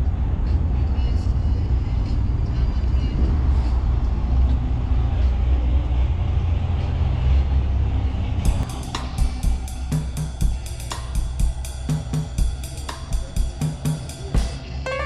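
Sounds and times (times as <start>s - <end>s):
car engine rumbling: 0.0s - 15.0s
music with drums and cymbals: 8.5s - 15.0s.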